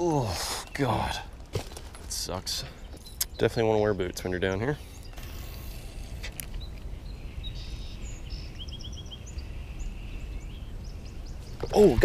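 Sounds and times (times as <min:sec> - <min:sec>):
small birds chirping: 0:00.0 - 0:12.0
low outdoor rumble: 0:03.8 - 0:12.0.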